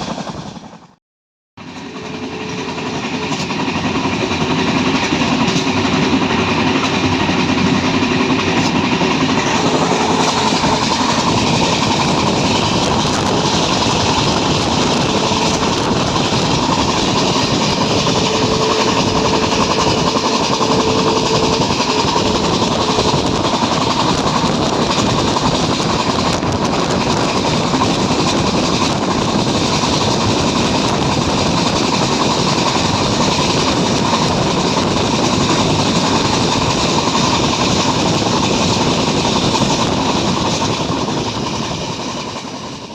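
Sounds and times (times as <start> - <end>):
diesel locomotive rumbling: 1.6 - 42.9
train wheels clattering on rails: 1.6 - 42.9.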